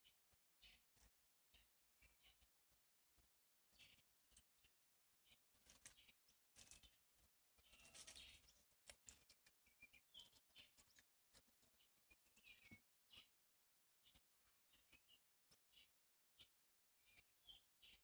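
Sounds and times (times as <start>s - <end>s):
faint rustles and clicks: 7.7s - 9.4s.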